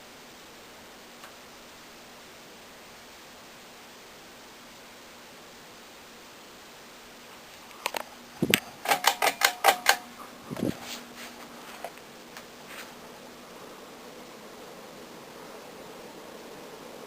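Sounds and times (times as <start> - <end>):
ceiling fan air noise: 0.0 - 17.0
sharp clicks: 7.7 - 10.1.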